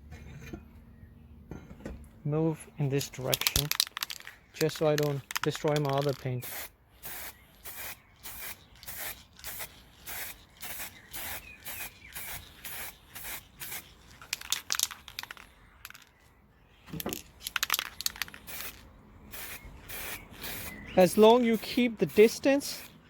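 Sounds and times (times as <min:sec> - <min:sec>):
spray paint can hissing: 0:03.4 - 0:16.0, 0:17.4 - 0:23.0.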